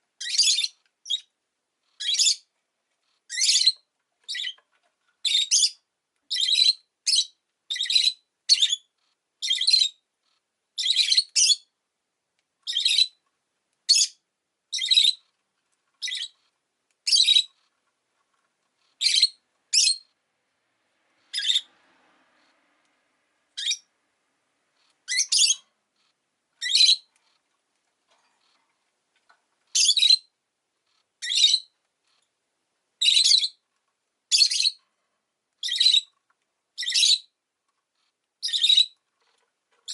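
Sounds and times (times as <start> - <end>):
lovebird chirping: 0.2 - 1.3, 2.0 - 2.5, 3.3 - 4.6, 5.2 - 10.0, 10.8 - 11.7, 12.6 - 13.2, 13.8 - 15.3, 16.0 - 17.7, 18.9 - 20.2, 21.2 - 21.7, 23.5 - 23.9, 24.8 - 25.7, 26.6 - 27.1, 29.7 - 30.3, 31.2 - 31.8, 33.0 - 33.6, 34.3 - 34.8, 35.6 - 36.2, 36.8 - 37.4, 38.4 - 39.0.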